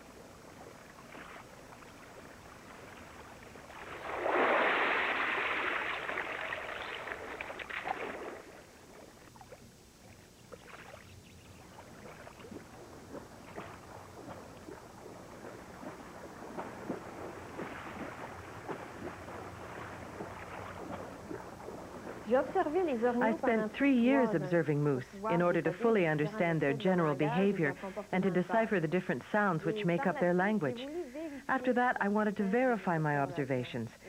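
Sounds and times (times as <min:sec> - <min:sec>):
rush of churned water: 0:00.0 - 0:09.6
water dripping: 0:00.0 - 0:23.2
water splashing and sloshing: 0:00.0 - 0:23.6
water lapping: 0:00.0 - 0:34.0.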